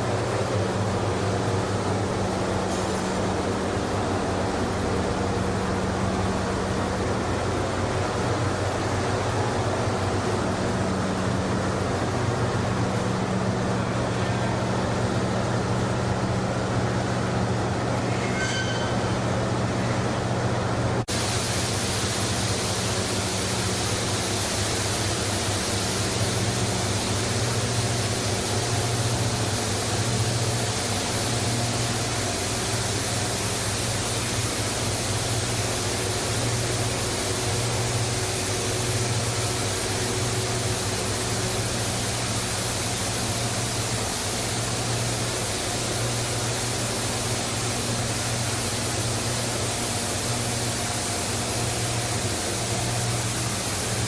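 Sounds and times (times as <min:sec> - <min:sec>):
washing machinery noise: 0:00.0 - 0:54.0.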